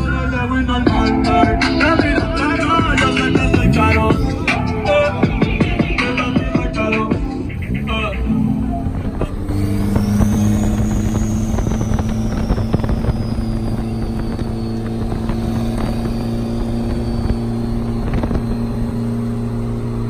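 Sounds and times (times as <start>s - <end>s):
car engine low drone: 0.0s - 20.0s.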